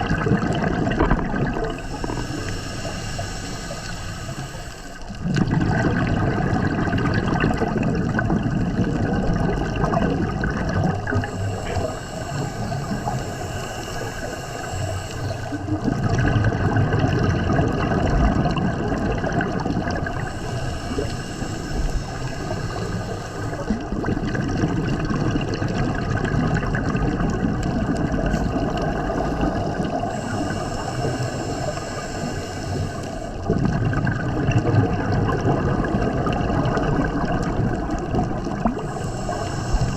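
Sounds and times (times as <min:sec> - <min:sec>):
exhaled air bubbling: 0:00.0 - 0:39.9
regulator hiss on inhalation: 0:01.7 - 0:05.2, 0:11.1 - 0:15.8, 0:20.1 - 0:24.0, 0:28.3 - 0:33.5, 0:38.8 - 0:39.9.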